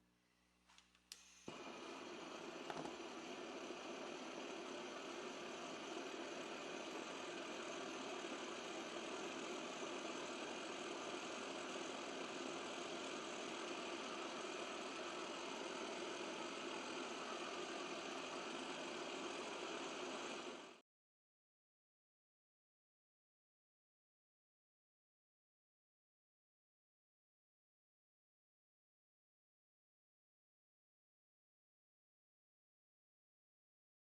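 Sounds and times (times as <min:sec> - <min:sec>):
propane burner rushing: 0:01.3 - 0:20.8.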